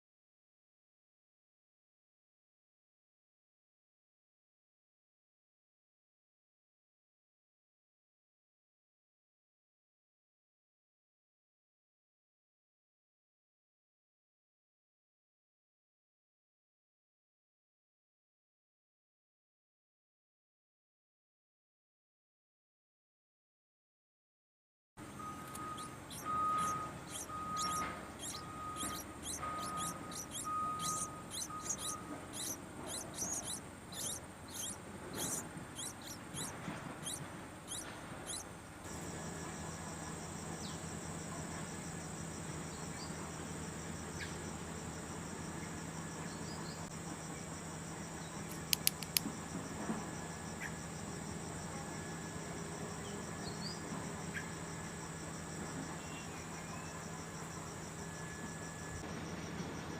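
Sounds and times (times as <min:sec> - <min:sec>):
low hum: 0:25.0 - 0:39.6
pulsing tone: 0:25.1 - 0:38.4
small bird chirping rapidly: 0:25.1 - 0:38.8, 0:48.2 - 0:49.3
high insect trill: 0:25.1 - 0:59.9
cluster of clicks: 0:48.5 - 0:49.3.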